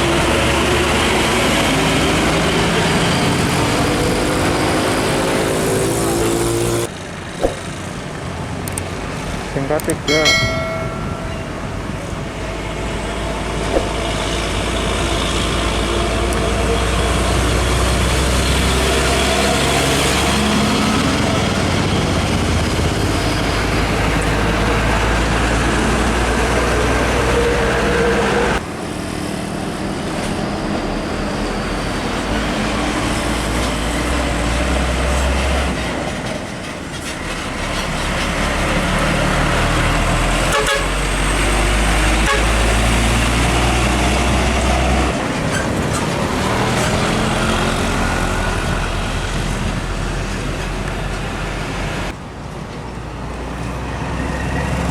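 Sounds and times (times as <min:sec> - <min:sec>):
diesel trucks passing: 0:00.0 - 0:54.9
truck horn toots: 0:40.4 - 0:41.2, 0:42.2 - 0:42.9.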